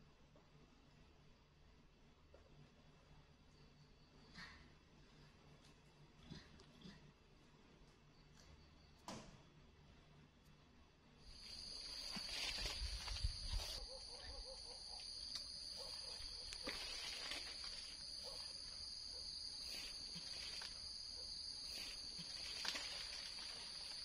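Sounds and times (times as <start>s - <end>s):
insects chirring: 11.2s - 24.0s
monkey rustling in branches: 11.3s - 14.2s, 15.0s - 24.0s.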